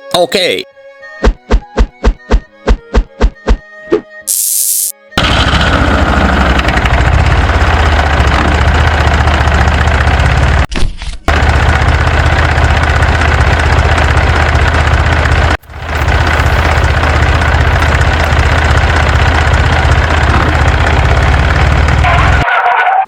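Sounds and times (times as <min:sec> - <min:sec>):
engine idling low rumble: 0:05.2 - 0:10.7, 0:11.3 - 0:22.4.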